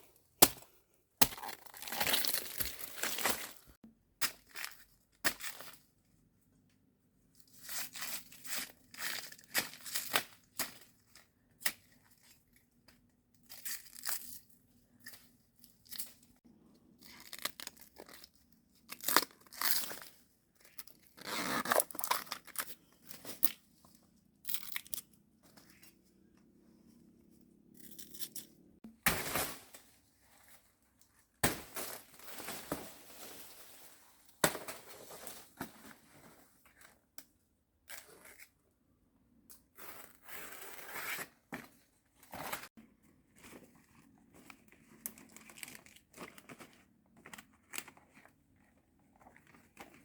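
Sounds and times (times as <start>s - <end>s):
tearing and crunching: 0.4s - 3.7s, 16.9s - 22.8s.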